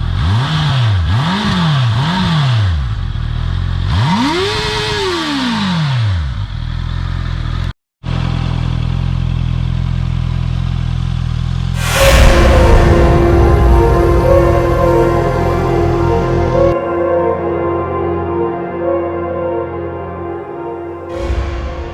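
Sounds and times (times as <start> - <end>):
motorcycle engine revving and idling: 0.0 - 11.8.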